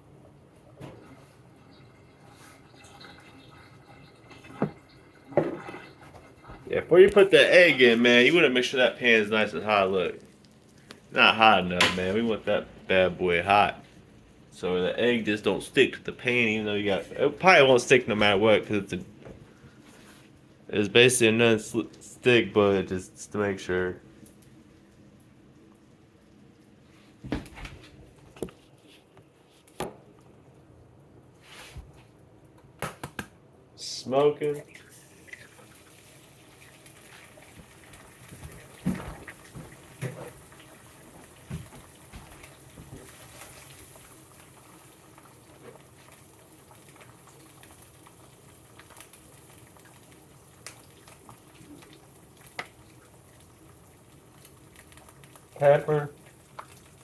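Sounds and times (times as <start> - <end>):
cookware knocking and clattering: 4.6 - 5.9, 11.8 - 12.1
patty sizzling in a pan: 34.7 - 57.0.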